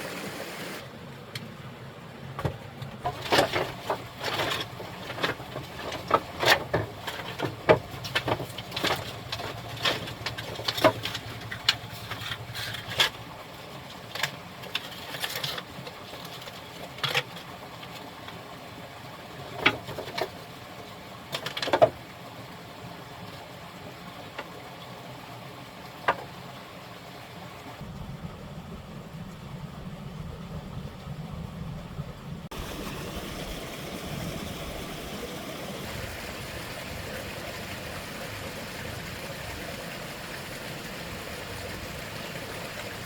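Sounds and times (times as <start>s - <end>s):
steady low hum: 27.8s - 43.0s.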